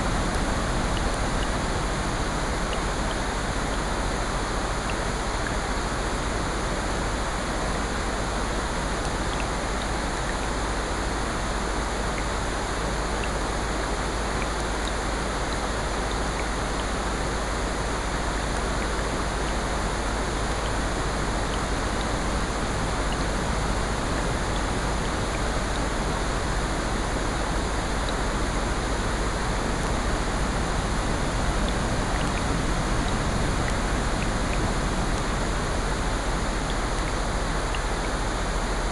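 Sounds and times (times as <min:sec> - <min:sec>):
rain: 0:00.0 - 0:38.9
ocean surf: 0:20.2 - 0:38.9.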